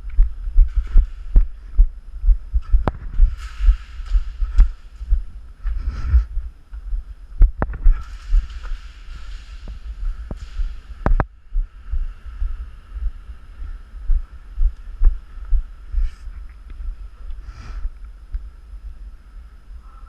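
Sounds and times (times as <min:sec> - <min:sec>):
low thumping and rustling: 0:00.0 - 0:12.6.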